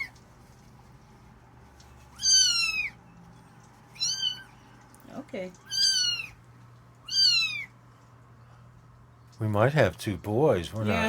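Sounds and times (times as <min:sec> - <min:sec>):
kittens meowing: 0:02.1 - 0:03.0, 0:03.9 - 0:04.7, 0:05.5 - 0:06.4, 0:07.0 - 0:07.8.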